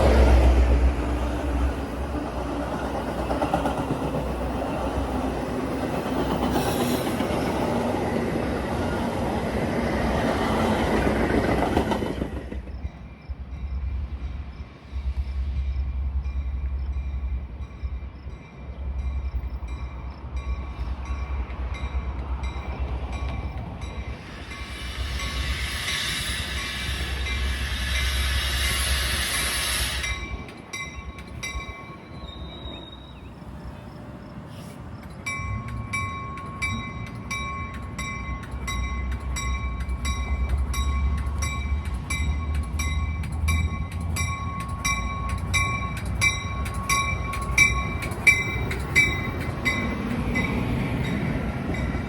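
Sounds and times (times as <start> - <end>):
train wheels on rails: 0.0 - 52.0.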